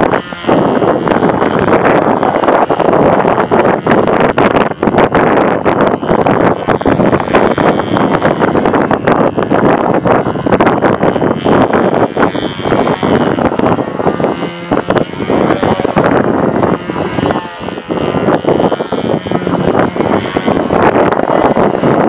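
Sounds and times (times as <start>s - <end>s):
model airplane engine whine: 0.0s - 22.0s
wind buffeting microphone: 0.0s - 22.0s.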